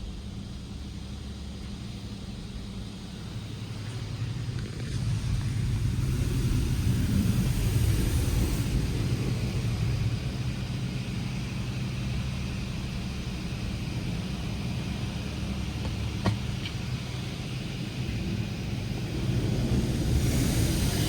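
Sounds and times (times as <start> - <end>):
car wash machine hum: 0.6 - 21.0
water spraying on car: 3.4 - 12.8, 16.0 - 21.0.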